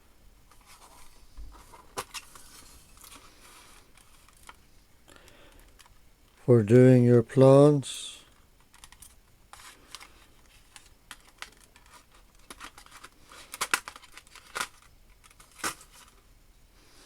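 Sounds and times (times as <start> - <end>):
paper rustling: 0.5 - 4.6, 8.7 - 16.2.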